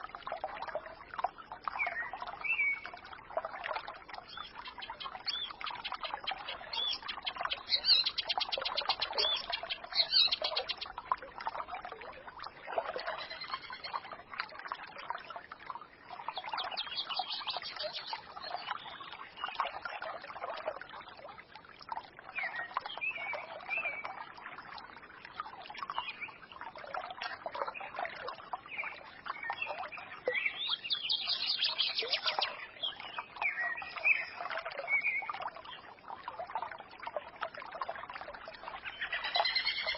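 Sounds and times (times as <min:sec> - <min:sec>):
stream murmuring: 0:00.0 - 0:39.9
small birds twittering: 0:04.2 - 0:11.0, 0:13.0 - 0:14.1, 0:16.2 - 0:19.8, 0:27.7 - 0:35.9, 0:38.8 - 0:39.9.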